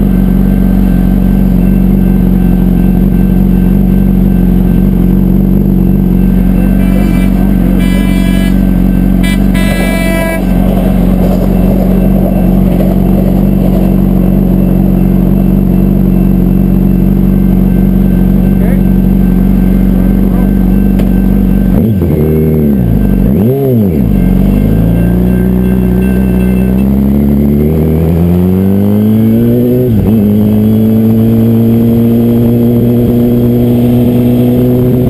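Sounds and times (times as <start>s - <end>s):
motorcycle engine idling: 0.0s - 27.6s
trolley horn blasts: 5.8s - 27.3s.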